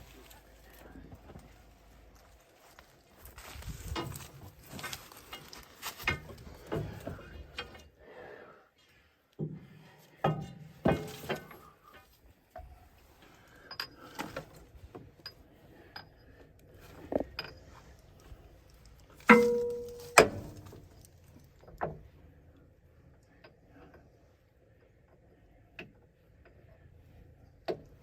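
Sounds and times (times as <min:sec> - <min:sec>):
loud ringing metal clanks: 0:19.2 - 0:20.7.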